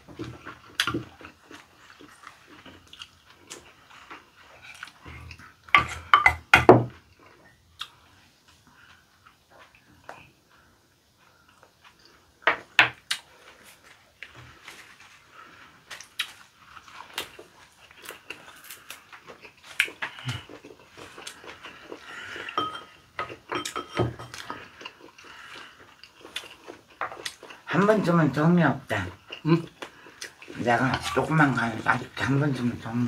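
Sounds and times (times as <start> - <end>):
wet chewing and crunching leaves: 0.0 - 5.6, 13.1 - 33.0.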